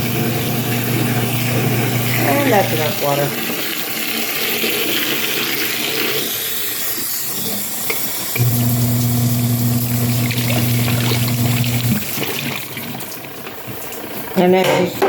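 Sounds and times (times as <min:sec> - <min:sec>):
washing machine motor humming: 0:00.0 - 0:04.3, 0:08.3 - 0:14.6
water splashing in tub: 0:08.6 - 0:14.1.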